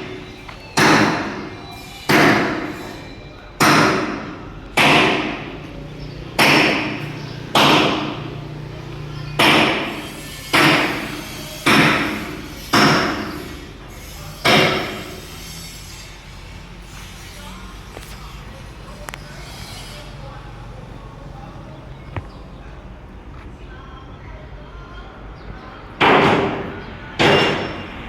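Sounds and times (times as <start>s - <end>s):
hammer striking steel: 0.0s - 5.6s, 6.4s - 8.4s, 9.4s - 16.1s, 26.0s - 27.9s.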